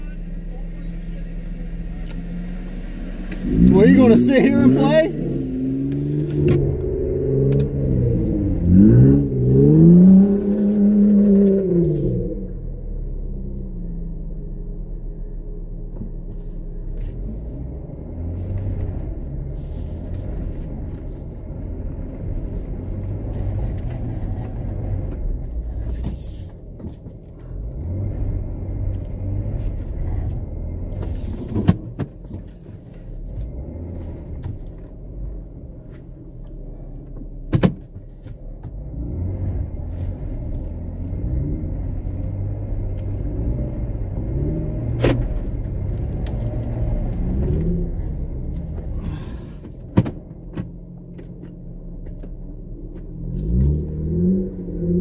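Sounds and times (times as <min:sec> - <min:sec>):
car engine revving in mud: 0:00.0 - 0:12.9, 0:38.8 - 0:49.7, 0:53.1 - 0:55.0.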